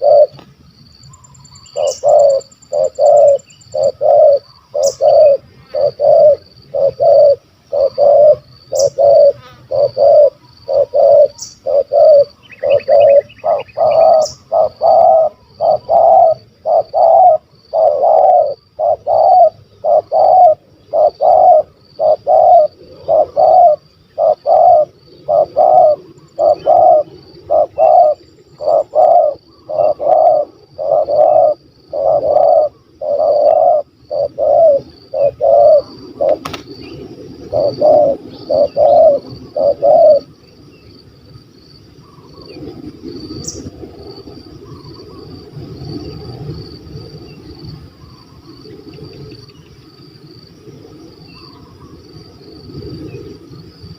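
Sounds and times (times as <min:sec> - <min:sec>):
dove cooing: 0:00.0 - 0:00.4, 0:01.2 - 0:40.4.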